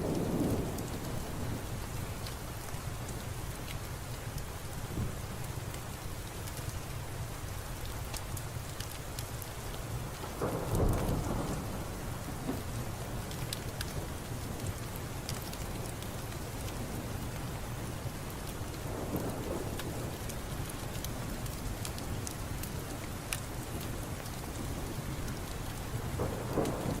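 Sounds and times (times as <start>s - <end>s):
rolling thunder: 0.0s - 2.2s, 10.3s - 14.1s, 24.4s - 27.0s
steady rain: 0.0s - 27.0s
raindrops ticking: 7.6s - 27.0s.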